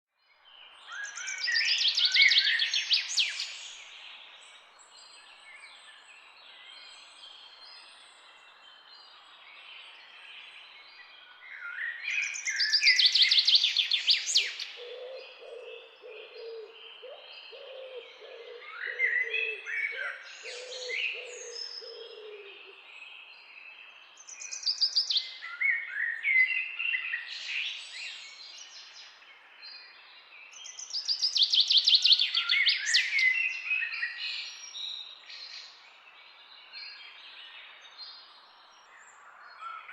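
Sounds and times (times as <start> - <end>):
small birds trilling: 13.8 - 22.9.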